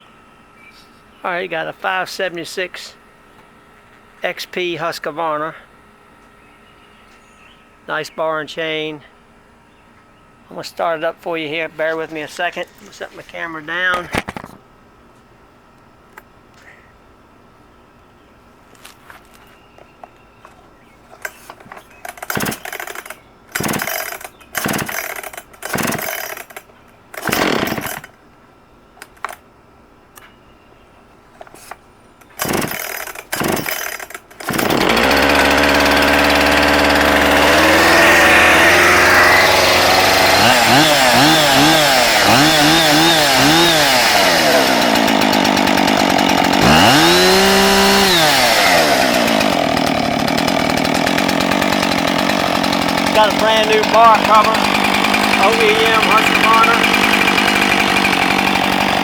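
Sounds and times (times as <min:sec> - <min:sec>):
chainsaw starter cord pulls: 0:21.2 - 0:28.2, 0:31.4 - 0:59.0
chainsaw engine idling and revving: 0:22.1 - 0:28.2, 0:32.4 - 0:59.0.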